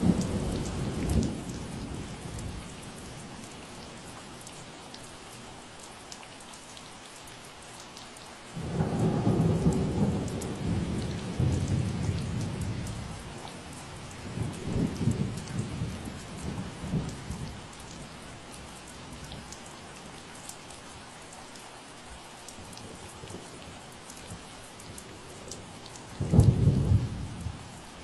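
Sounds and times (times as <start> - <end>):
steady rain: 0.0 - 28.0
thunder rumbling: 8.6 - 13.4, 14.0 - 17.5, 26.1 - 27.6.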